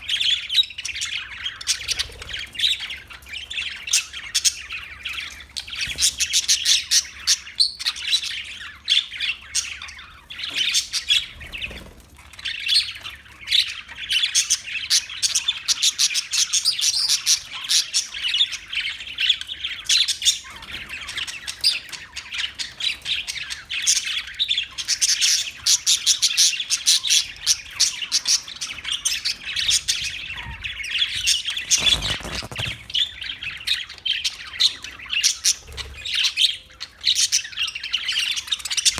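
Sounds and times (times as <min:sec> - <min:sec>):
parakeets chirping and squawking: 0:00.0 - 0:38.9.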